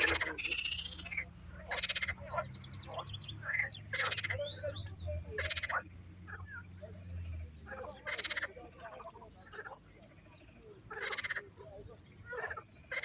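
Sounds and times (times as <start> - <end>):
frogs calling: 0.0 - 13.0.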